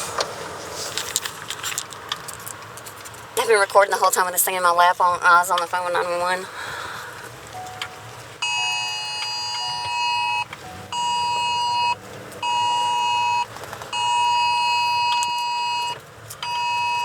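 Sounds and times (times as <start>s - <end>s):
phone two-tone alert alarm: 7.6s - 17.0s.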